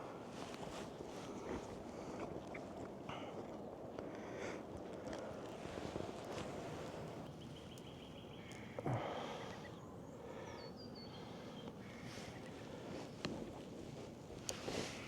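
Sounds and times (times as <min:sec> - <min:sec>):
faint bird calls: 0:07.4 - 0:13.2.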